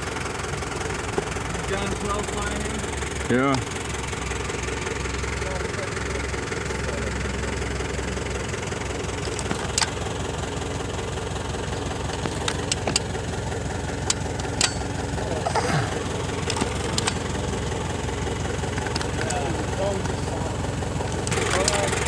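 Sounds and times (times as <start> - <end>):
engine running: 0.0 - 22.0
sharp clicks: 9.1 - 10.2, 11.2 - 22.0.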